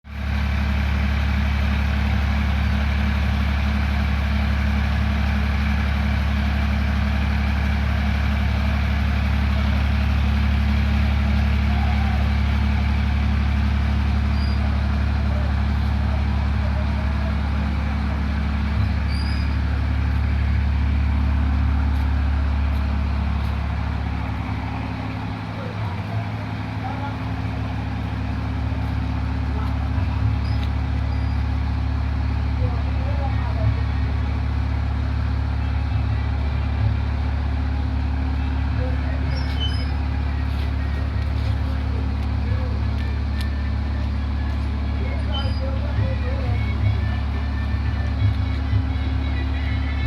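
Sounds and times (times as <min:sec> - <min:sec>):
deep mechanical hum: 0:00.1 - 0:50.0.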